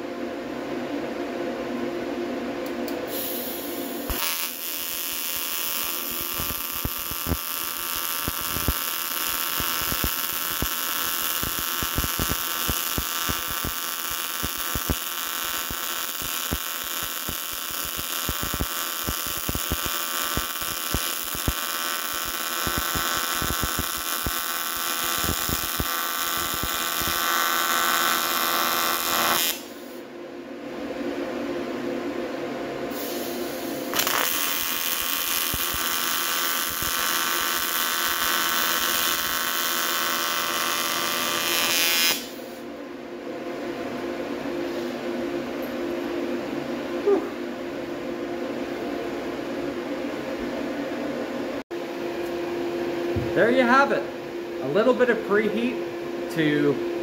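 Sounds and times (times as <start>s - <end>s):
welding arc buzz: 3.0s - 30.0s, 32.9s - 42.6s
welding arc crackling: 3.1s - 30.0s, 33.6s - 42.6s.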